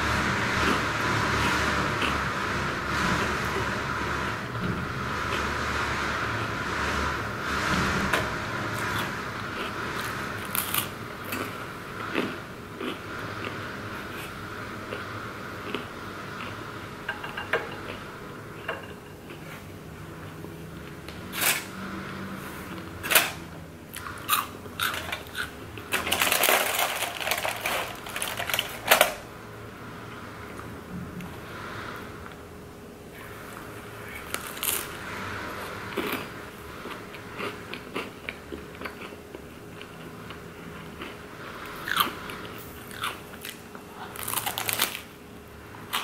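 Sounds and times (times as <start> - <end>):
chewing and crunching snacks: 0.6 - 2.3, 8.7 - 16.7, 22.7 - 29.1, 34.0 - 45.1, 45.8 - 46.0.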